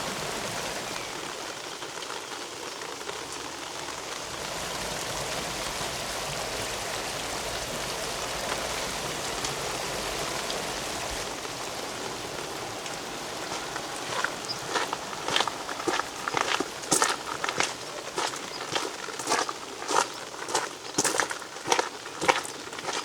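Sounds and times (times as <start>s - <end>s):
rain pattering on stone pavement: 0.0s - 23.0s
footsteps: 12.6s - 23.0s.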